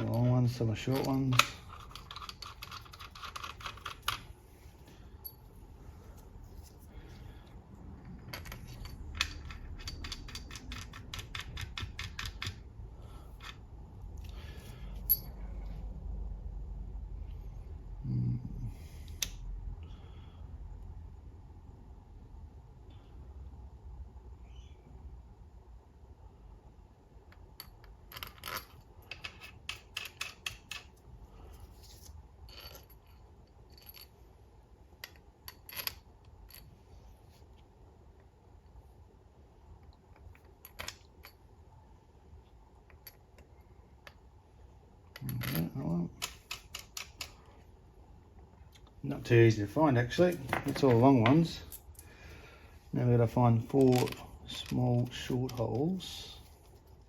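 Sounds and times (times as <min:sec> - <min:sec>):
metal bolts clinking: 0:08.1 - 0:12.6, 0:50.1 - 0:52.1, 0:53.6 - 0:56.2
small bolts clicking: 0:08.2 - 0:12.6, 0:45.2 - 0:47.5.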